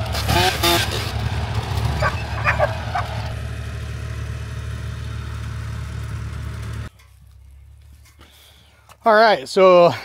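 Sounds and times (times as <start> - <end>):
vehicle engine idling: 0.0 - 9.1
dog barking: 2.0 - 3.1.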